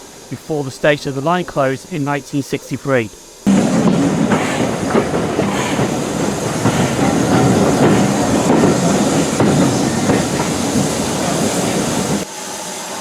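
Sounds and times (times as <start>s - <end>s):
train carriages rumbling: 0.0s - 12.3s
wheels clacking over rail joints: 3.5s - 12.3s.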